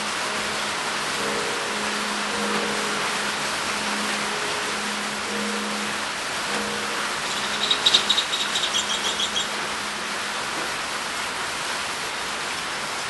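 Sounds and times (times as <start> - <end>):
heavy rain pouring: 0.0 - 13.0
bird chirping: 7.2 - 9.6.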